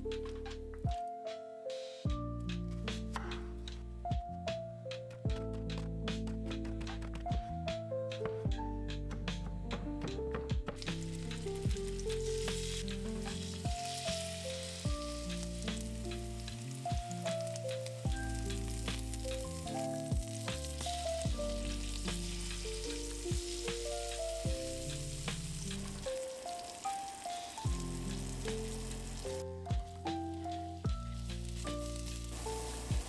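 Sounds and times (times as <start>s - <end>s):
background music with bass line: 2.1s - 26.2s, 27.7s - 33.0s
food sizzling in a pan: 10.8s - 33.0s.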